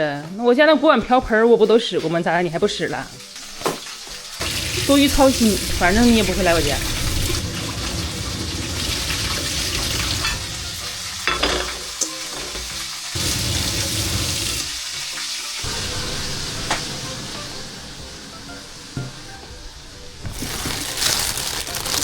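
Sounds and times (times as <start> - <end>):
food sizzling in a frying pan: 2.6 - 17.6.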